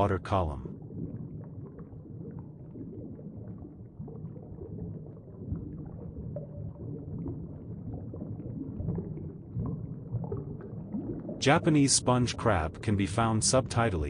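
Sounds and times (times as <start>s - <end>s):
underwater rumble: 0.0s - 14.0s
faint bubbling clicks: 0.6s - 11.5s.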